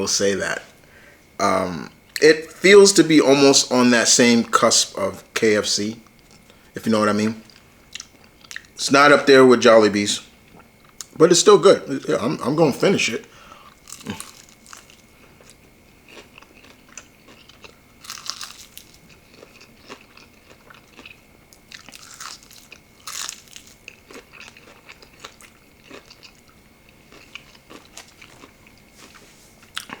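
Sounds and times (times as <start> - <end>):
crunchy chewing of fried chicken: 6.1 - 8.8, 13.1 - 30.0.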